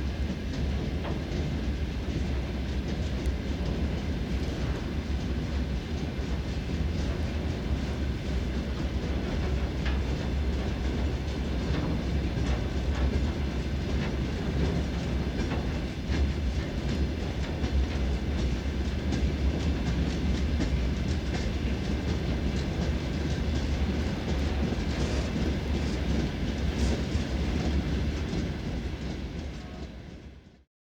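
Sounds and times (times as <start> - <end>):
freight train wagons rumbling: 0.0 - 30.6
train wheels clicking over rail joints: 9.0 - 29.2.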